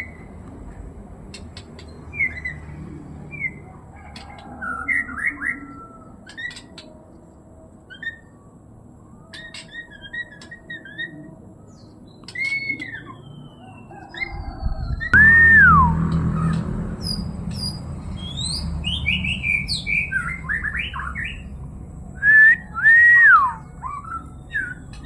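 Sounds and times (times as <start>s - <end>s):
bird singing whistled notes: 7.9s - 8.4s, 9.2s - 21.5s, 22.2s - 25.0s.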